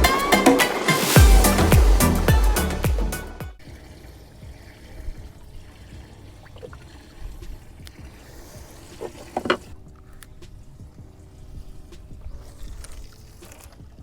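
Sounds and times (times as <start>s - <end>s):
water lapping and trickling: 3.5s - 14.0s.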